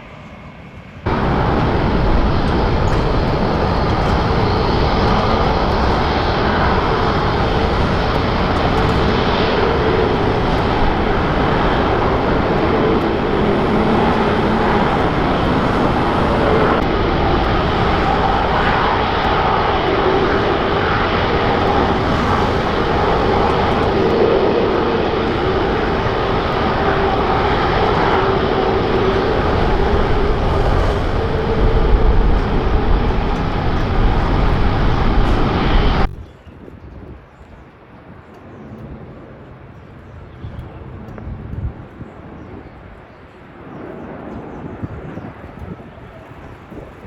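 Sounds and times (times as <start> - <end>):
jet engines roaring: 1.0 - 36.2.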